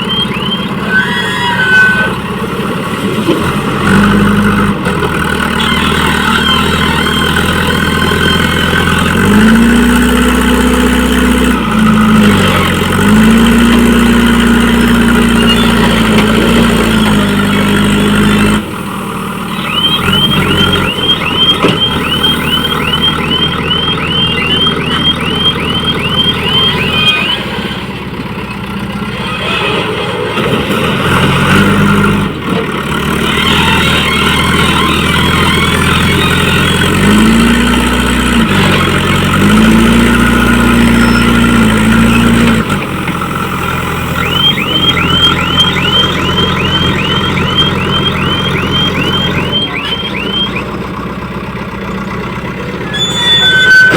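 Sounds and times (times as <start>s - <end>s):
reversing alarm chirping: 0.0s - 2.5s, 5.4s - 10.3s, 13.2s - 28.6s, 33.2s - 51.0s, 52.7s - 53.9s
diesel engine revving: 0.0s - 53.9s.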